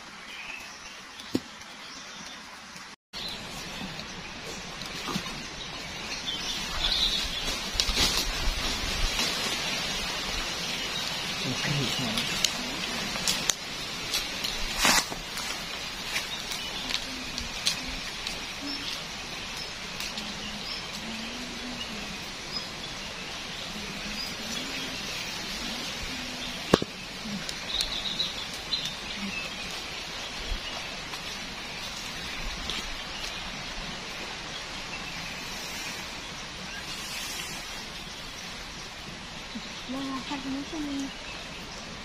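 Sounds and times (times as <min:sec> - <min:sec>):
birds chirping: 0:00.0 - 0:42.0
sharp crack: 0:26.7 - 0:27.6.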